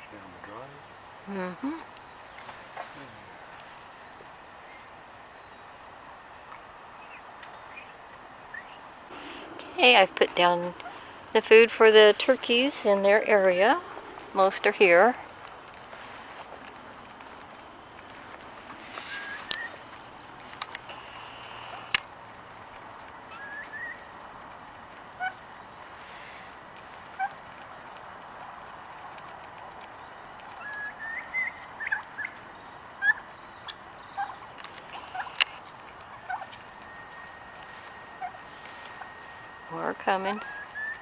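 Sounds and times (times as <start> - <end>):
turkeys peeping and clucking: 7.0 - 41.0
sharp clicks: 20.5 - 22.2, 34.6 - 35.6.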